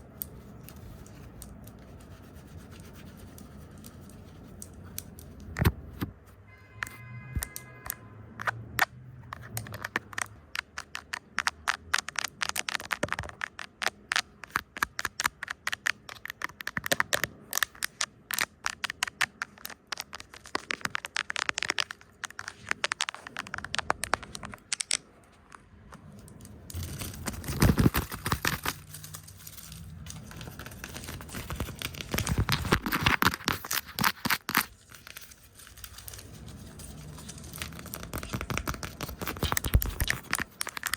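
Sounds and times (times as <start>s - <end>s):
scratchy brushing and rubbing: 0.2s - 5.4s, 18.3s - 24.6s, 26.7s - 40.9s.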